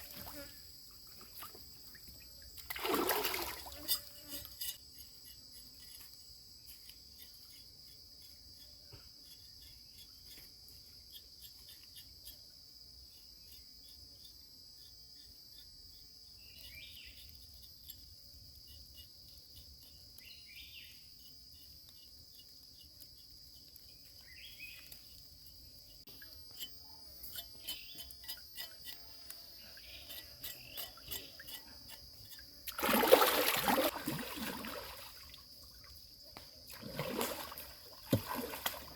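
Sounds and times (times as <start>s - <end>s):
insects chorus: 0.0s - 38.9s
water splashing: 2.6s - 4.0s, 32.7s - 35.9s, 36.7s - 38.9s.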